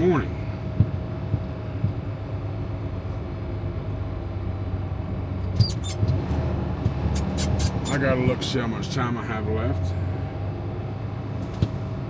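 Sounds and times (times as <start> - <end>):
diesel truck engine rumble: 0.0 - 12.0
short high squeaks: 5.6 - 6.1, 7.2 - 8.0.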